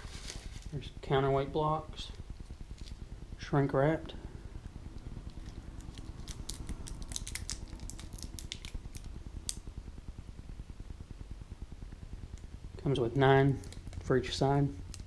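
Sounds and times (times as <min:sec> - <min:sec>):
plastic packaging crinkling: 0:05.3 - 0:09.6.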